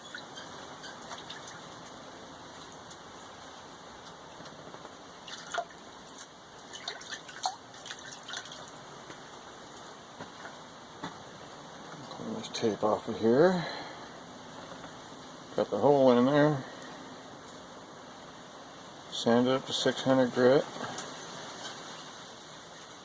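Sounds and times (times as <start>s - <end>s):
water trickling and dripping: 0.0s - 10.4s.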